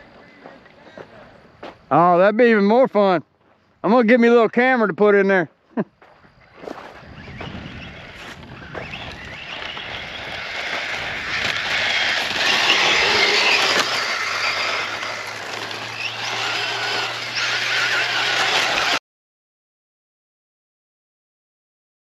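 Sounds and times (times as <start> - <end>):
electric motor whining: 7.0 - 19.0.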